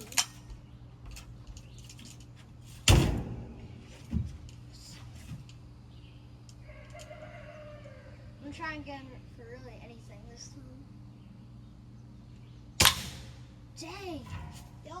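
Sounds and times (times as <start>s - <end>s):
air rifle shot clack: 12.8s - 13.4s.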